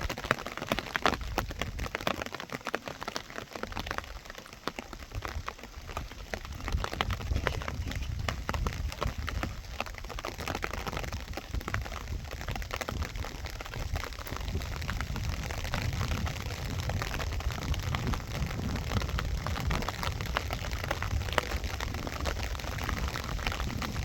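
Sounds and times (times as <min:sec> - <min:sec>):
heavy rain: 0:00.0 - 0:24.0
raindrops pattering close by: 0:00.0 - 0:24.0.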